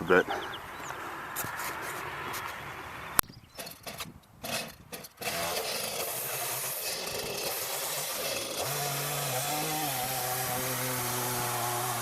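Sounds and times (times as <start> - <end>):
chainsaw cutting log: 3.6 - 12.0.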